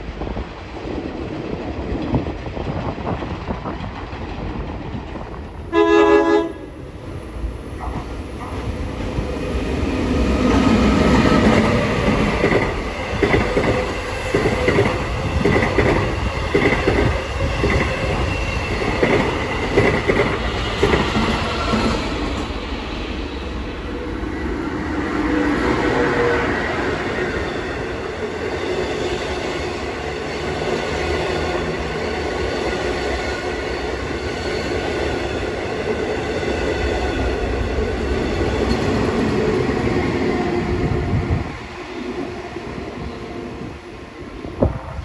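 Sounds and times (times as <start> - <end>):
train wheels clacking over rails: 0.0 - 43.8
train horn blast: 5.7 - 6.7.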